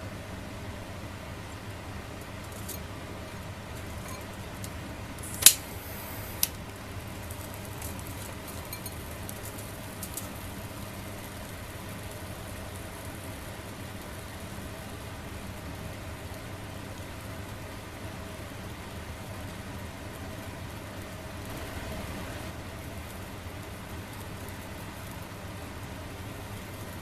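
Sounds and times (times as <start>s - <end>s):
high hiss: 5.1s - 6.6s.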